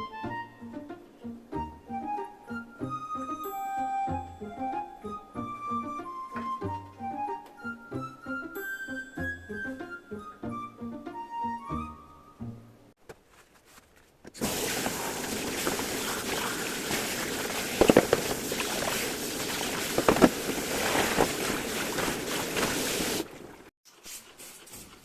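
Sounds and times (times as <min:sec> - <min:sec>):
tap water running into sink: 0:14.4 - 0:23.7.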